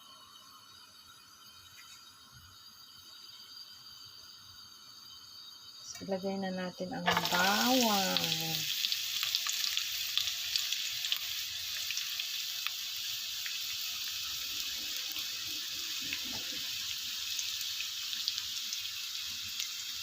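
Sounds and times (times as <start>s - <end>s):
garlic sizzling in oil: 0.0s - 20.0s
oil crackling and popping: 7.1s - 20.0s.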